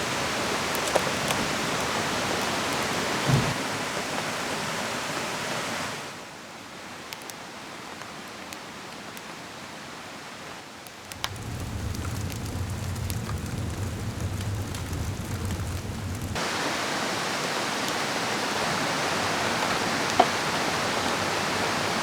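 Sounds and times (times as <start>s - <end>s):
rain: 0.0s - 22.0s
drops ticking on a surface: 11.1s - 16.4s
river rushing: 11.1s - 22.0s
low rumble: 11.2s - 16.4s.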